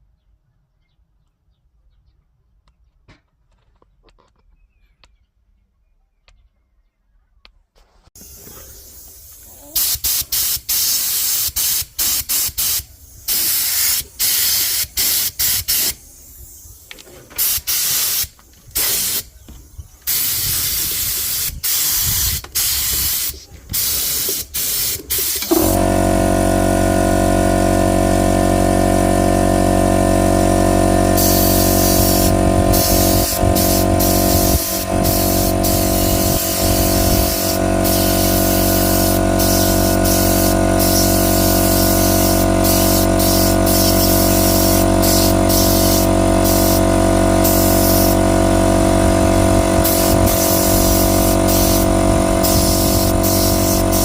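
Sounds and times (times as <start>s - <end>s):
spray hissing in bursts: 8.2s - 19.4s, 20.0s - 54.0s
steady motor hum: 25.4s - 54.0s.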